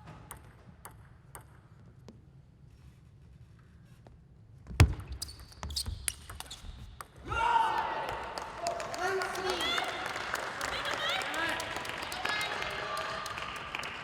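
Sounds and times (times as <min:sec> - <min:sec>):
table tennis ball clicking: 0:00.3 - 0:01.6.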